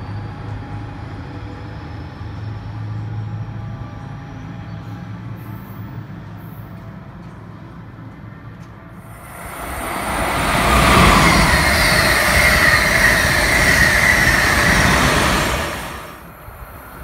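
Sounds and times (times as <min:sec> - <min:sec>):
train passing at speed: 0:00.0 - 0:17.0
train whine: 0:08.9 - 0:17.0.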